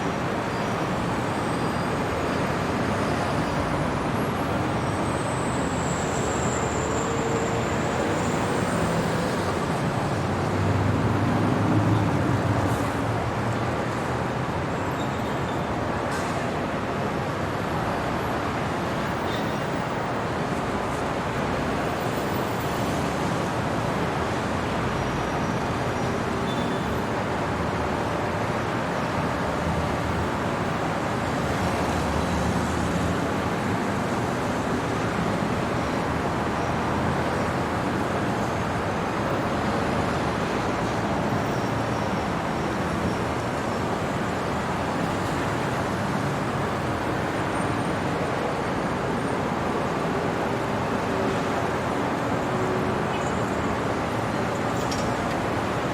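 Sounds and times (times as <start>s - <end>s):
road traffic hum: 0.0s - 55.9s.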